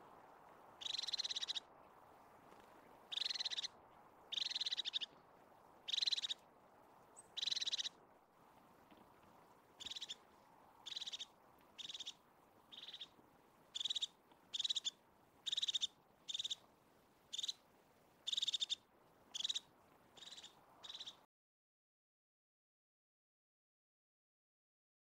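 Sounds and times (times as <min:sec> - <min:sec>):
bird trilling: 0:00.8 - 0:01.6, 0:03.1 - 0:03.7, 0:04.3 - 0:05.1, 0:05.9 - 0:06.4, 0:07.3 - 0:07.9, 0:09.8 - 0:10.2, 0:10.9 - 0:13.1, 0:13.8 - 0:16.6, 0:17.3 - 0:17.6, 0:18.3 - 0:18.8, 0:19.4 - 0:19.6, 0:20.2 - 0:21.2.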